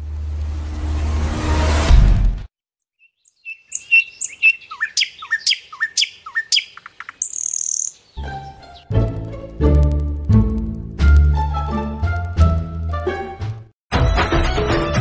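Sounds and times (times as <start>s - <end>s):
small songbird chirping: 2.8s - 8.9s
music: 8.2s - 15.0s.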